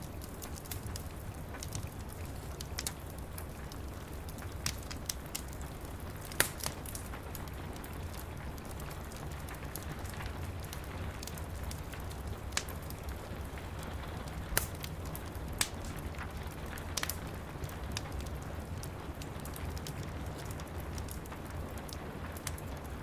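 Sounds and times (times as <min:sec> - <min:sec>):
steady rain: 0:00.0 - 0:23.0
wood fire crackling: 0:00.0 - 0:23.0
sharp pops of fire: 0:06.2 - 0:07.5, 0:14.4 - 0:18.3.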